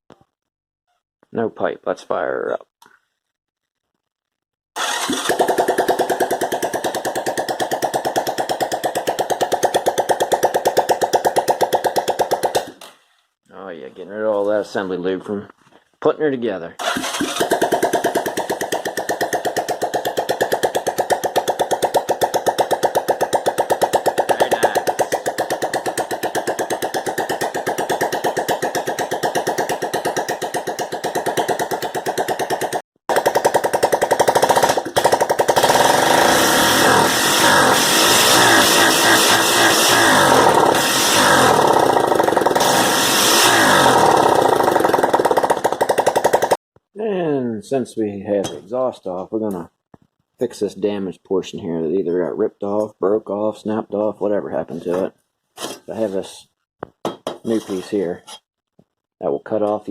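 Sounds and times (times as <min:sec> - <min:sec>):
engine running with sharp pops: 0:04.9 - 0:12.9, 0:17.2 - 0:46.6.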